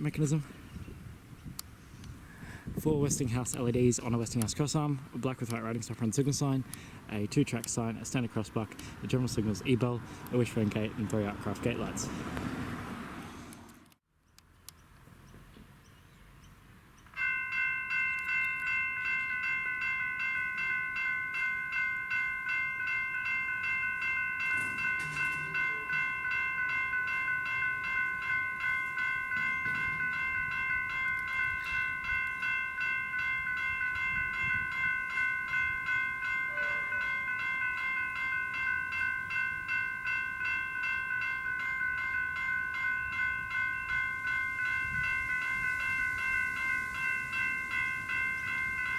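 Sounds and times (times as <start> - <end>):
level crossing bells ringing: 17.2 - 48.9.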